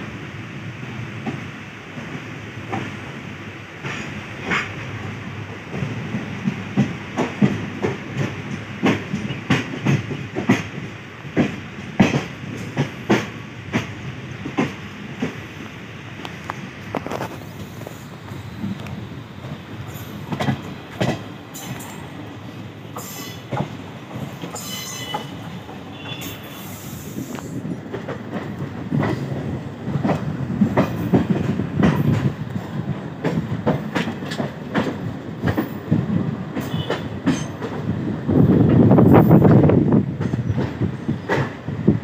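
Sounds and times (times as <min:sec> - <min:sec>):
train rumbling on rails: 0:00.0 - 0:42.0
wheels clicking over rail joints: 0:18.6 - 0:22.1, 0:27.1 - 0:37.9
high wheel squeals: 0:23.0 - 0:23.5, 0:24.6 - 0:27.2.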